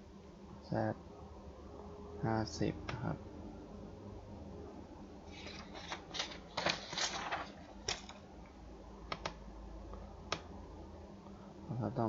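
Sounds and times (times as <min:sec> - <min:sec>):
steady low hum: 0:00.0 - 0:12.0
keyboard keystrokes: 0:09.1 - 0:09.4.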